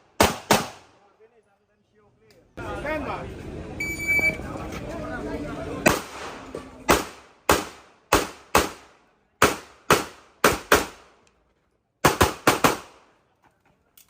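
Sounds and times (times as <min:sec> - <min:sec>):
pistol shots: 0:00.1 - 0:00.9, 0:05.8 - 0:11.1, 0:12.0 - 0:13.1.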